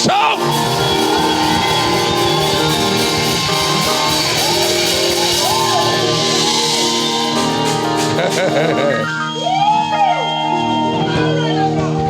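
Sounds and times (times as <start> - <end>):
live praise band music: 0.0 - 9.6.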